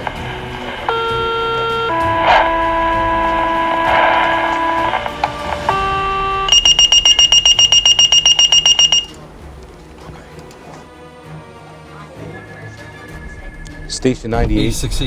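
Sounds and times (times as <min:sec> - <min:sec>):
fast high-pitched beeping: 0:00.0 - 0:09.2
sequential paging tones: 0:00.0 - 0:09.2.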